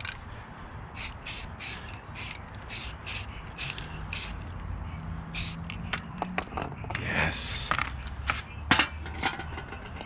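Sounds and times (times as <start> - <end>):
spray can hissing bursts: 1.0 - 4.4, 5.4 - 5.6.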